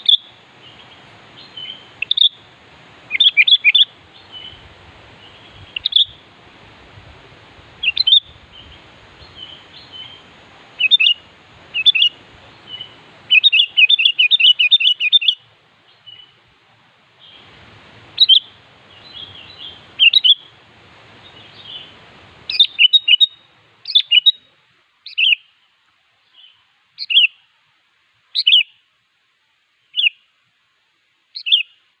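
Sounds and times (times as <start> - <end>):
bulbul calling: 0.0 - 2.5, 3.1 - 4.6, 5.2 - 6.2, 7.8 - 16.4, 18.2 - 20.6, 21.2 - 24.5, 25.1 - 25.5, 26.4 - 27.4, 28.4 - 28.8, 31.4 - 31.8
low background hiss: 0.0 - 32.0.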